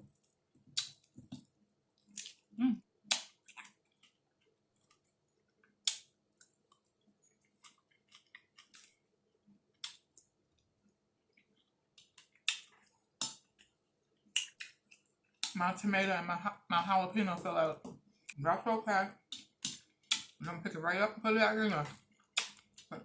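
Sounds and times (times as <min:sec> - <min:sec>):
person chewing crunchy food: 0:00.0 - 0:15.6, 0:22.0 - 0:22.9.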